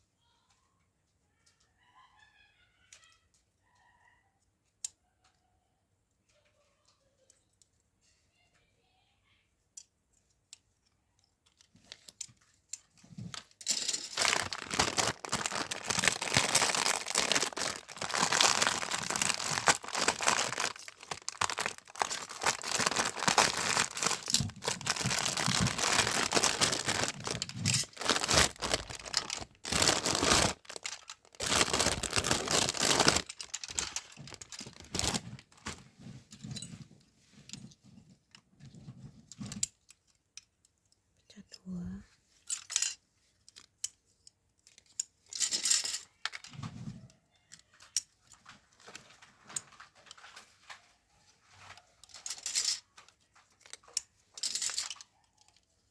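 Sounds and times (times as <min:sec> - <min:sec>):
packaging crinkling and tearing: 0:13.3 - 0:35.8.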